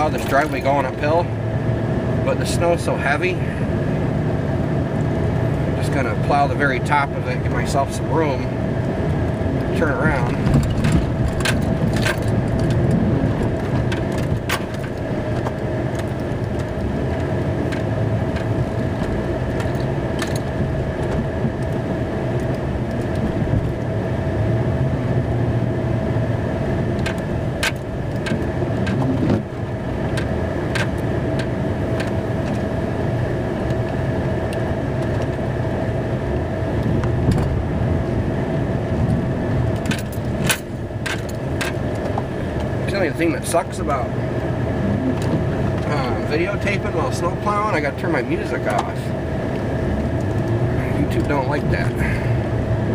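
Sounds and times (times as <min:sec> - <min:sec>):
snow-plow truck engine rumble: 0:00.0 - 0:52.9
plow clicks and rattles: 0:09.8 - 0:21.8, 0:26.9 - 0:32.7, 0:39.0 - 0:44.1, 0:45.2 - 0:52.1.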